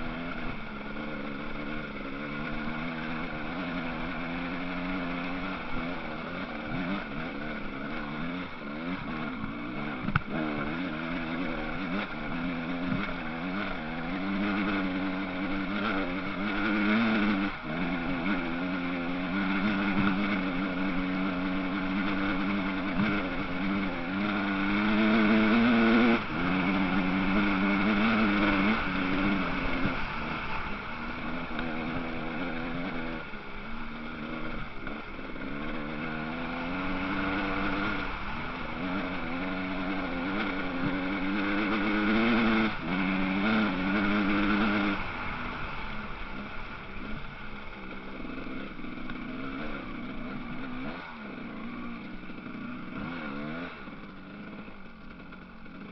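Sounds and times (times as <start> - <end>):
motocross bike engines revving: 0.0 - 55.9.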